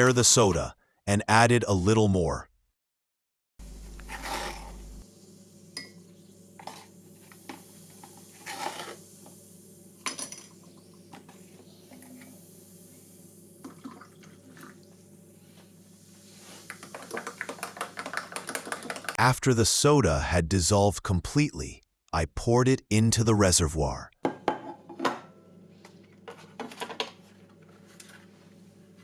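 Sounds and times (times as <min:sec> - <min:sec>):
faint steady hum: 0:03.6 - 0:18.2.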